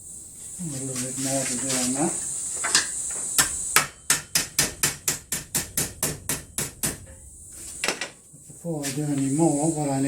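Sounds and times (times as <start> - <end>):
hammer striking sheet metal: 2.7 - 7.2.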